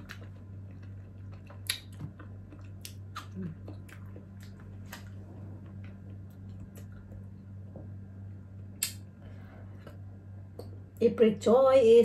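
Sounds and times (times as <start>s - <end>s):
person chewing with mouth clicks: 0.0s - 7.4s
steady low hum: 0.0s - 12.0s.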